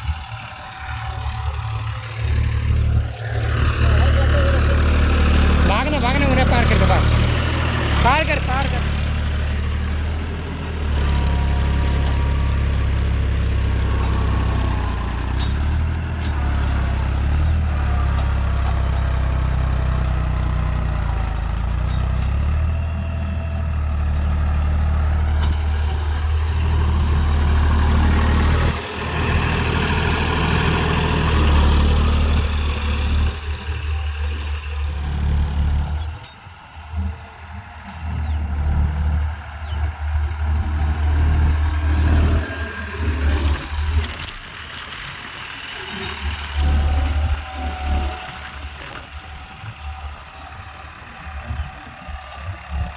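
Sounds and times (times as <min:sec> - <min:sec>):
tractor engine idling: 0:00.0 - 0:52.9.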